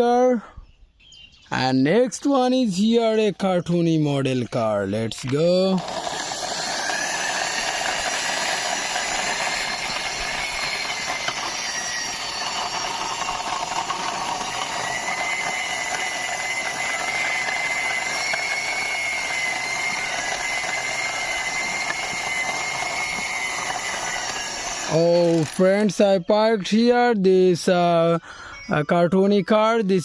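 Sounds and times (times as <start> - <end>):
toy car wheels whirring: 2.7 - 26.5.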